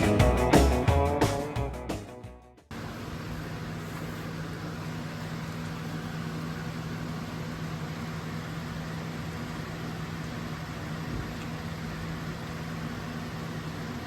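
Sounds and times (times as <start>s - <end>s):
background music: 0.0s - 2.7s
low mechanical hum: 2.7s - 14.0s.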